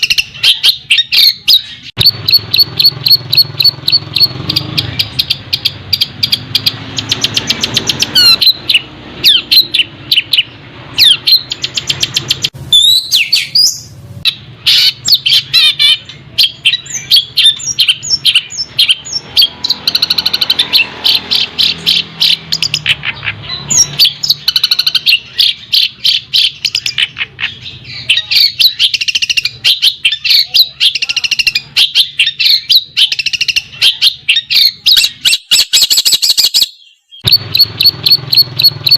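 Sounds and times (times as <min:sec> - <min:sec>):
sweeping whistled bird notes: 0:00.0 - 0:22.9
songbird chirping and trilling: 0:00.0 - 0:38.9.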